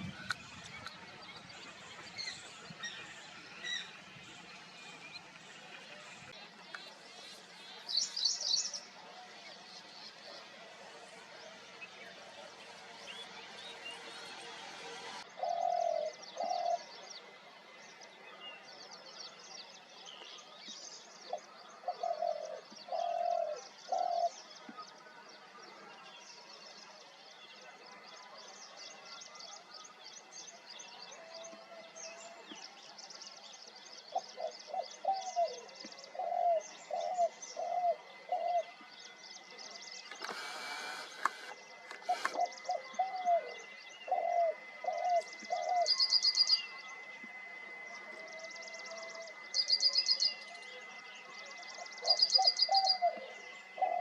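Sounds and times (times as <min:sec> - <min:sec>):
small birds chirping: 0:00.0 - 0:17.2, 0:28.6 - 0:54.0
dove cooing: 0:15.4 - 0:16.8, 0:21.8 - 0:24.4, 0:34.1 - 0:38.8, 0:40.3 - 0:46.1, 0:52.0 - 0:54.0.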